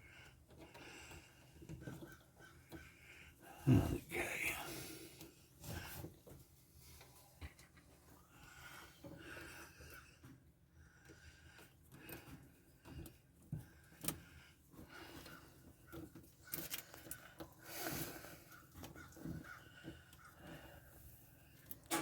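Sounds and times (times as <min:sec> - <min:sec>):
hands twisting electrical wires: 0:11.5 - 0:20.7.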